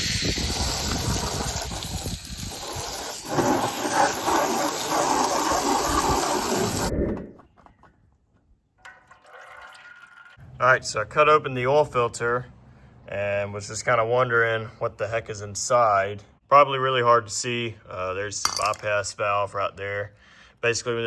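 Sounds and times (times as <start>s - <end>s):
liquid spraying and gushing: 0.0s - 6.9s.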